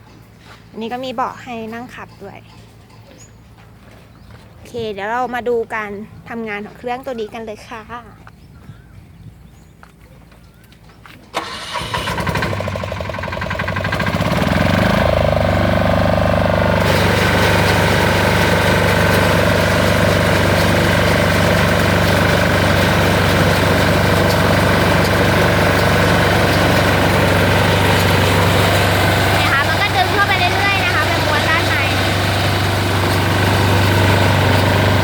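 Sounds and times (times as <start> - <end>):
small diesel engine running: 11.3 - 35.0.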